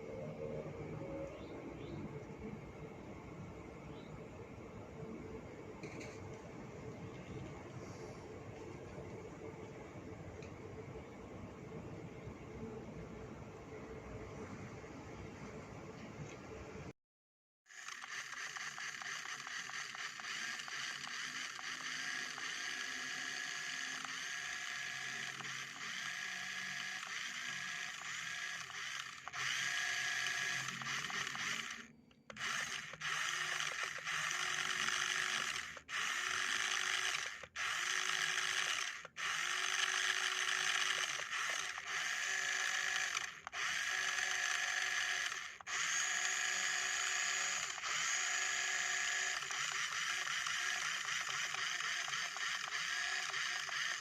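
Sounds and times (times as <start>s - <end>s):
electric motor and gearbox whining: 17.7s - 54.0s.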